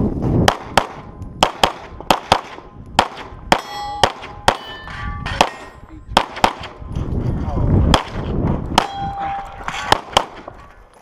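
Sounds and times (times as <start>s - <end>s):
pistol shots: 0.4s - 6.8s, 7.9s - 10.6s
steel targets clanging: 3.6s - 5.9s.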